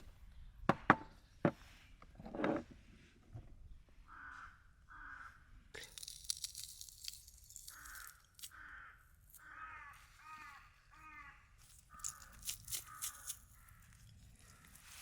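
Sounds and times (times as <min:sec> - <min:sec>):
bird cawing: 0:04.1 - 0:05.4, 0:07.6 - 0:14.9.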